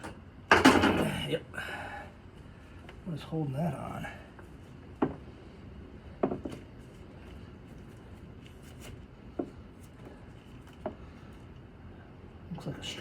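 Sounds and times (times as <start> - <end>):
steady low background noise: 0.0 - 13.0.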